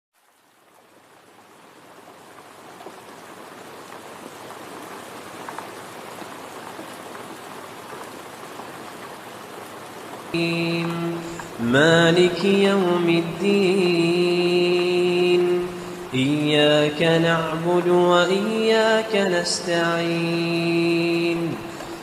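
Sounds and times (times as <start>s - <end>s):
raindrops pattering on a surface: 0.2s - 22.0s
steady rain falling: 0.2s - 22.0s.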